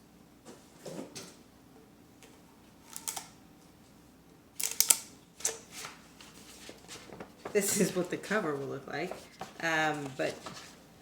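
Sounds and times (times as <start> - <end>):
paper rustling and crinkling: 5.4 - 11.0.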